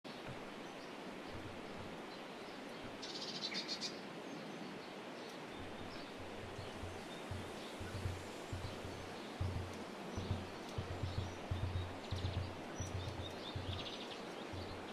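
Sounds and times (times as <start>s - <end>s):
steady outdoor hiss: 0.0s - 14.9s
low dull thumps: 1.2s - 2.0s, 5.5s - 14.9s
songbird chattering call: 5.6s - 14.9s.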